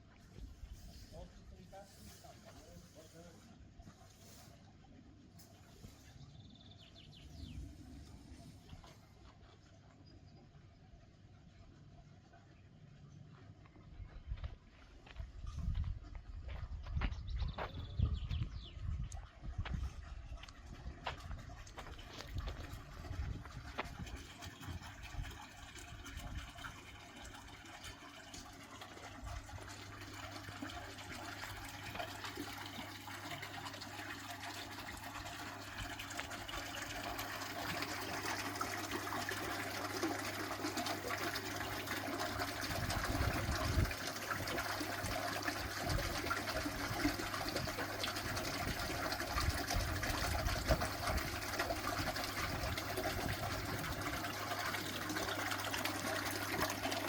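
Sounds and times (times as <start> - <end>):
running water splashing: 20.7 - 57.0.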